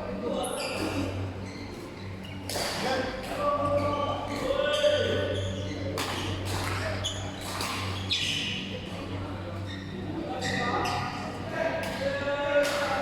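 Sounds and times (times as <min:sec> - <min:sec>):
shoes squeaking on court: 0:07.0 - 0:08.7, 0:09.6 - 0:11.2.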